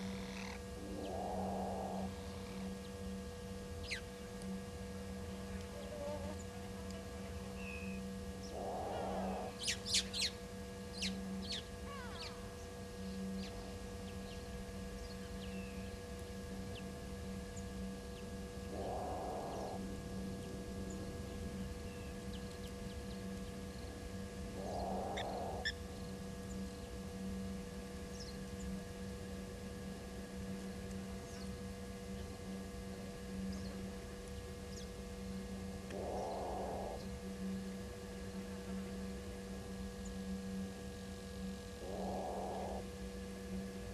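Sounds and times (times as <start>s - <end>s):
animal call: 0.0s - 2.6s, 8.5s - 10.3s, 11.8s - 12.4s, 18.7s - 19.8s, 24.6s - 25.8s, 35.9s - 37.0s, 41.8s - 42.9s.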